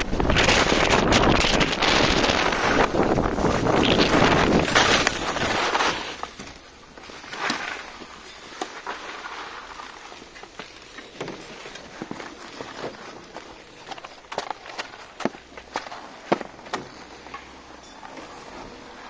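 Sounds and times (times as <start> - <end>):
wind rushing over microphone: 0.0 - 5.8.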